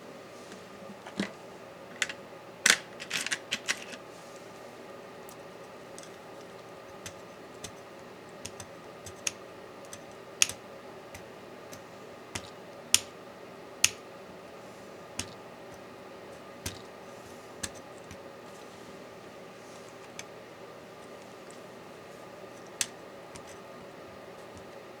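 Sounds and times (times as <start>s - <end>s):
faint steady hum: 0.0s - 25.0s
small tools clicking and tapping: 5.3s - 13.1s, 15.2s - 15.8s, 17.6s - 18.2s, 22.6s - 23.6s.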